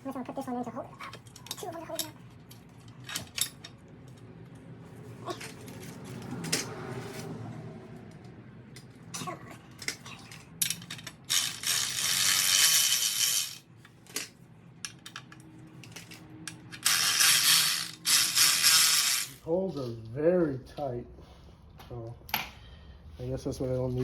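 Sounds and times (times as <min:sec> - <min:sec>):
metal bolts and tools clinking: 0:01.1 - 0:04.2, 0:09.8 - 0:19.3.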